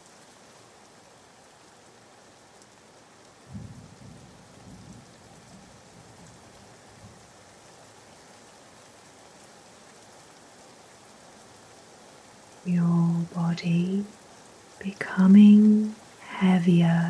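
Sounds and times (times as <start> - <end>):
rain ambience: 0.0 - 17.0.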